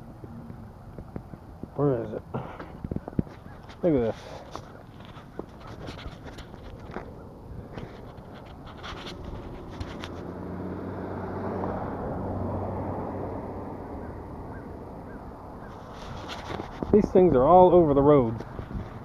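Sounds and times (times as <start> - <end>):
light clicks and scrapes: 2.4 - 10.5, 15.7 - 17.2
vehicle driving past: 7.2 - 16.8.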